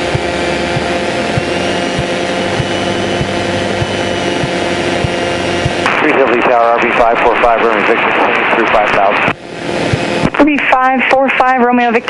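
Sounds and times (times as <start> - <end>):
propeller aircraft engine in flight: 0.0 - 5.9, 9.3 - 10.2.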